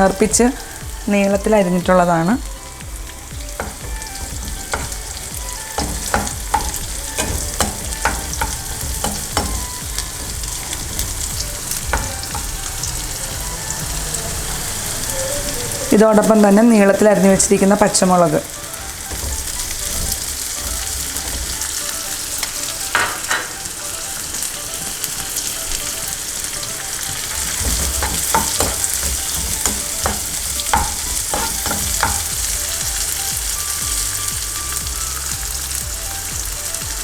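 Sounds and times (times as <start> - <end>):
vegetables sizzling in hot oil: 0.0 - 37.0
spatula scraping a pan: 2.6 - 16.4, 17.1 - 23.6, 27.0 - 34.0.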